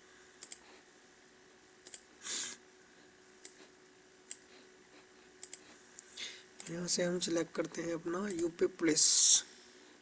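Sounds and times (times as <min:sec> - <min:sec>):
faint electrical hum: 0:00.0 - 0:10.0
mouse and keyboard clicks: 0:05.4 - 0:05.6.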